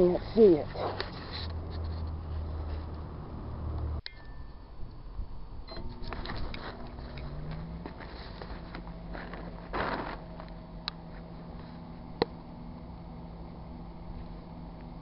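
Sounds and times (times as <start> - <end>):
microwave oven humming: 5.2 - 15.0.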